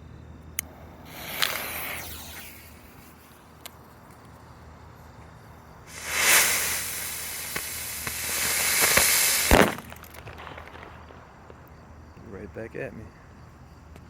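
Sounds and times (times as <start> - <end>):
firework hissing: 0.7 - 4.0, 5.8 - 11.6
firework crackles: 0.8 - 4.1, 5.8 - 12.1
firework bang: 1.0 - 3.0, 5.9 - 11.9.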